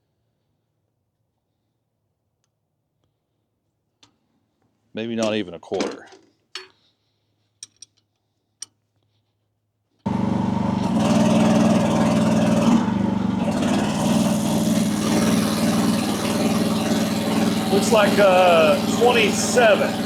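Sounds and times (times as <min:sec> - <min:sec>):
excavator engine running: 0:10.1 - 0:20.0
hydraulics working: 0:10.1 - 0:20.0.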